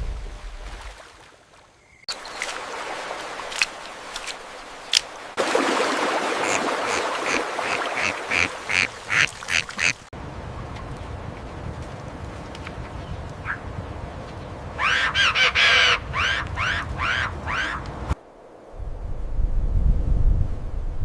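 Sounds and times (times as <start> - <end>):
bird calling: 6.4 - 10.0, 14.8 - 17.9.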